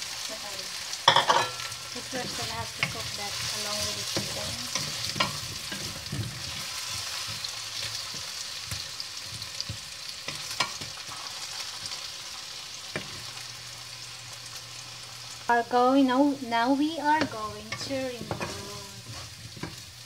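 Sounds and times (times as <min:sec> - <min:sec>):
potatoes sizzling in oil: 0:00.0 - 0:20.0
wooden spatula scraping pan: 0:02.0 - 0:08.3, 0:17.2 - 0:20.0.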